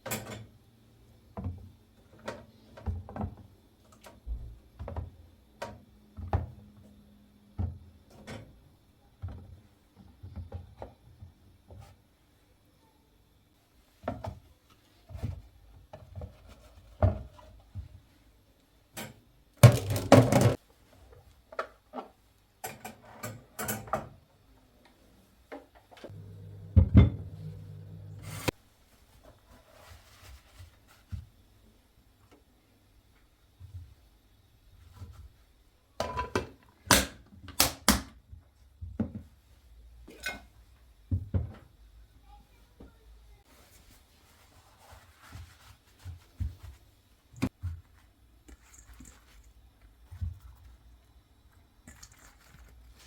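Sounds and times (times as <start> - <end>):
objects knocking and clattering: 19.6 - 20.6.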